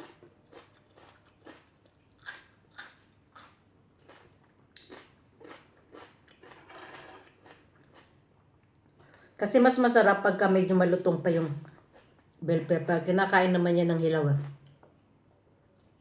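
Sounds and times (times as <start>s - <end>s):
person chewing crunchy food: 0.0s - 9.3s, 11.6s - 12.4s.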